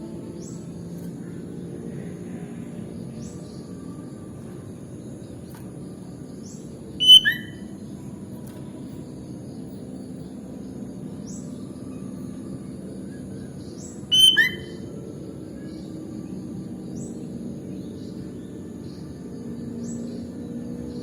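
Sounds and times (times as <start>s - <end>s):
bulbul call phrases: 7.0s - 7.6s, 14.1s - 14.8s
faint high chirps: 7.0s - 7.9s, 14.0s - 15.2s.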